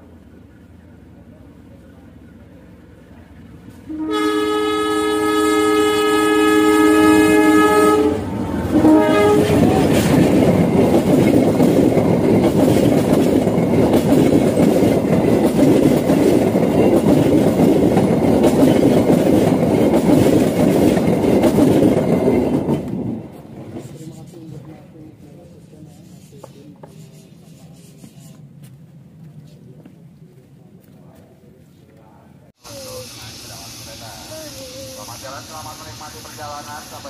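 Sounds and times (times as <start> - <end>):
train passing rumble: 0.0 - 26.2, 28.4 - 37.0
locomotive horn: 3.9 - 10.1.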